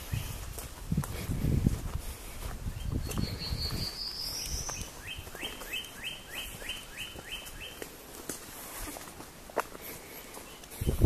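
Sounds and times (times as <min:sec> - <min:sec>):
songbird singing: 0:00.0 - 0:00.6, 0:02.2 - 0:11.0
footsteps on trail: 0:00.0 - 0:11.0.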